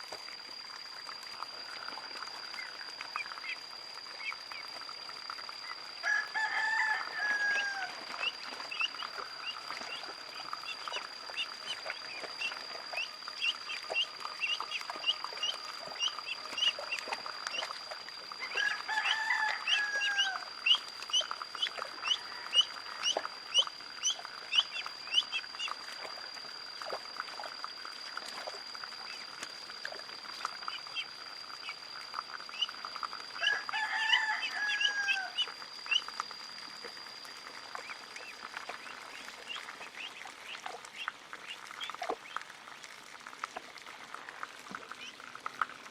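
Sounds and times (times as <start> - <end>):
steady high-pitched tone: 0.0 - 41.0
ducklings peeping: 7.5 - 17.8, 18.4 - 25.8, 32.4 - 33.5, 34.4 - 36.3, 37.7 - 42.4.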